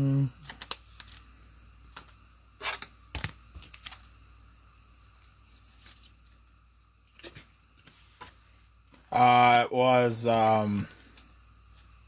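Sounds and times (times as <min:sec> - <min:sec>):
cards rustling: 0:00.4 - 0:01.3, 0:02.0 - 0:04.2, 0:05.5 - 0:08.4
foil wrapper crinkling: 0:00.4 - 0:01.3.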